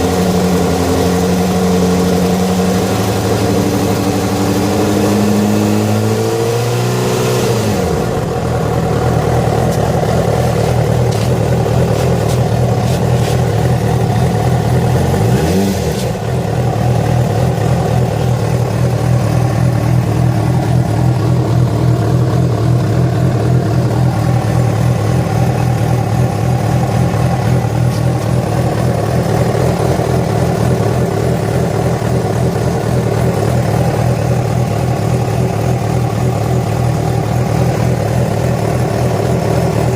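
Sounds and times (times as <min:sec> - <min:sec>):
motorcycle engine idling: 0:07.8 - 0:15.4, 0:16.0 - 0:39.9.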